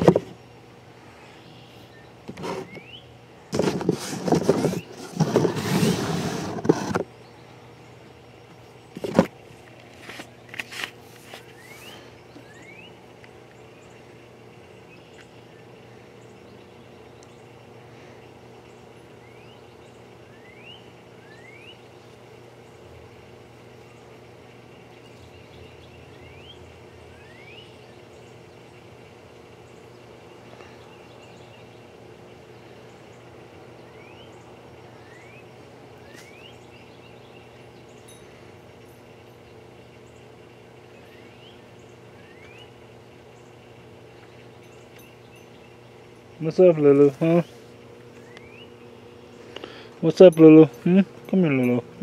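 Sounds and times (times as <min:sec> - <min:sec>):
low background hum: 0:00.0 - 0:52.0
bird whistled calls: 0:11.5 - 0:13.0, 0:19.2 - 0:21.9, 0:27.2 - 0:27.9, 0:35.0 - 0:37.5, 0:48.2 - 0:48.8.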